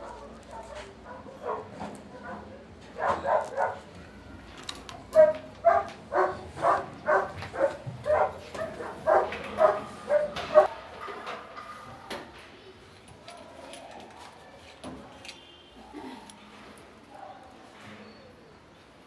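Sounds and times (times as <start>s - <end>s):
dog barking: 0.0s - 3.9s, 5.2s - 10.7s.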